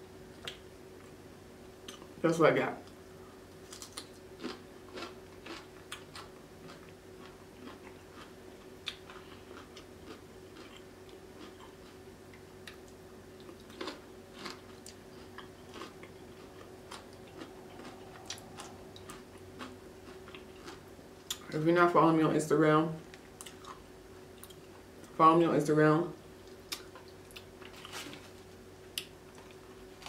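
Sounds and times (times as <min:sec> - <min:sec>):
faint steady hum: 0:00.0 - 0:30.0
close chewing: 0:03.8 - 0:12.8, 0:13.4 - 0:21.4.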